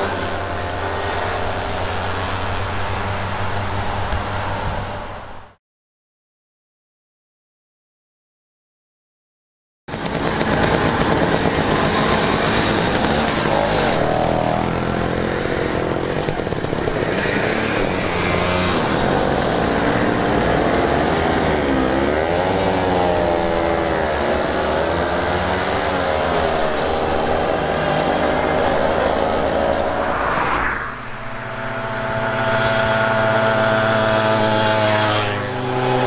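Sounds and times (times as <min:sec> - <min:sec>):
two-stroke mopeds revving: 0:00.0 - 0:05.0, 0:09.9 - 0:36.0.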